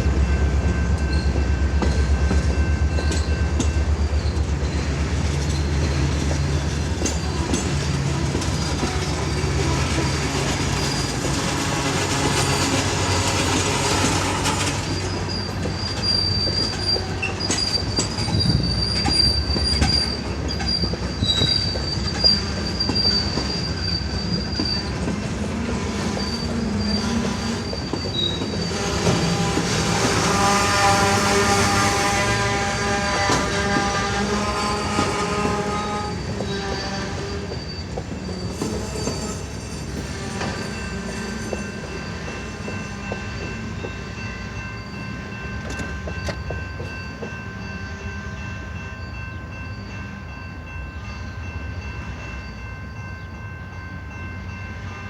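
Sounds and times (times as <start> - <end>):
diesel locomotive rumble: 0.0 - 47.7
high wheel squeal: 4.0 - 47.4
train wheel clicks over rail joints: 45.6 - 47.4.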